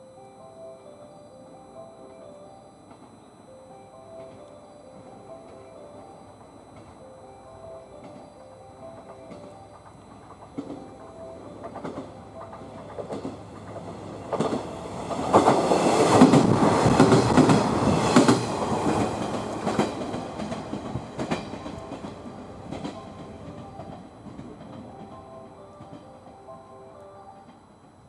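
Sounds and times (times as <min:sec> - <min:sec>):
train wheels clacking over joints: 0:09.3 - 0:24.8.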